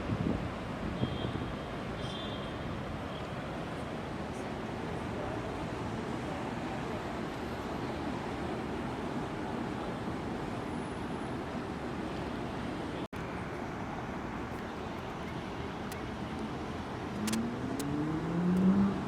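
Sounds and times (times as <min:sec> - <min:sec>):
wind on microphone: 0:00.0 - 0:01.5
steady outdoor rumble: 0:11.6 - 0:19.0.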